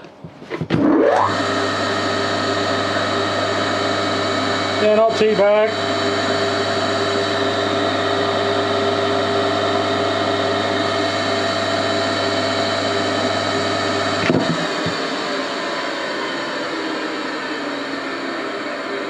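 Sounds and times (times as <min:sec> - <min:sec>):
electric motor humming: 0:00.8 - 0:19.0.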